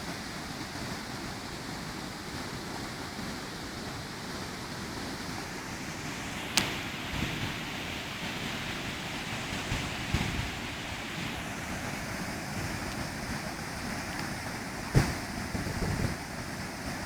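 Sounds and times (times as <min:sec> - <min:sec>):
floodwater rushing: 0:00.0 - 0:17.0
wind buffeting microphone: 0:06.7 - 0:17.0.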